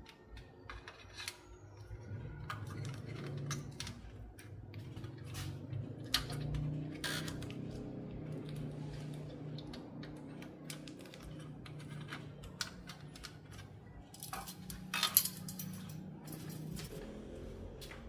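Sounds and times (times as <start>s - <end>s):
small metal tools clinking: 10.1s - 17.0s.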